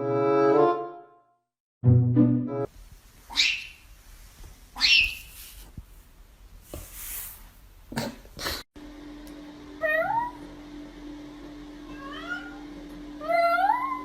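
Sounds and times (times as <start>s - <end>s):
scuffing and hissing noises: 3.9s - 7.7s
cat meowing: 11.9s - 12.6s, 13.2s - 14.0s.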